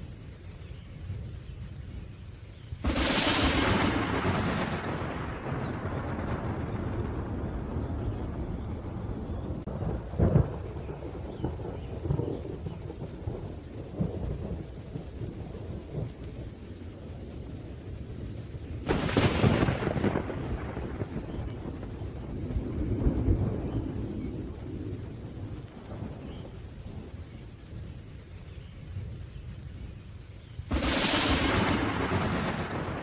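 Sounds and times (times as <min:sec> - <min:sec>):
steady rain: 0:00.0 - 0:33.0
sharp thunderclap: 0:02.8 - 0:16.4, 0:18.8 - 0:26.4, 0:30.7 - 0:33.0
thunder rumbling: 0:02.8 - 0:33.0.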